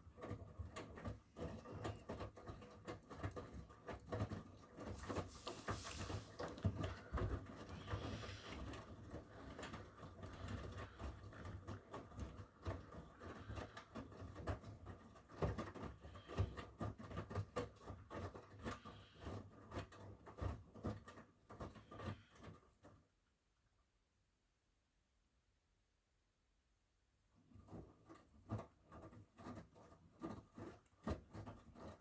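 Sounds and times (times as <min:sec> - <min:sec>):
washing machine hum: 0:00.0 - 0:16.6.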